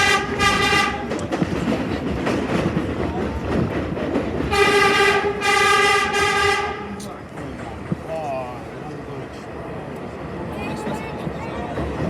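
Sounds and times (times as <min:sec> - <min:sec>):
subway train horn: 0:00.0 - 0:01.2, 0:04.5 - 0:07.0
train wheels clattering on rails: 0:00.0 - 0:12.0.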